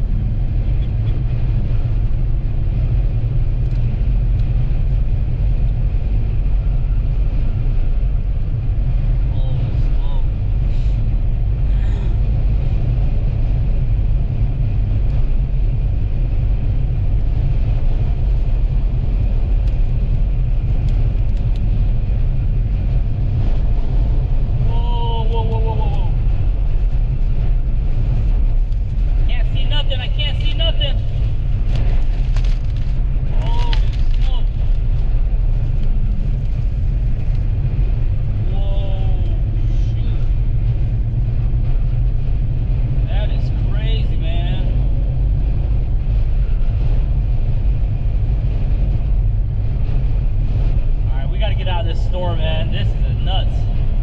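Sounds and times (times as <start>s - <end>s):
road noise: 0.0s - 54.0s
vehicle driving on highway: 0.0s - 54.0s
wind: 0.0s - 54.0s.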